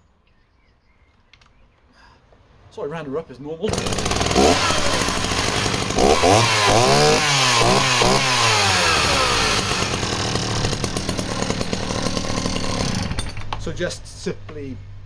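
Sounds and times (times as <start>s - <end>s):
chainsaw revving and idling: 3.7s - 15.0s.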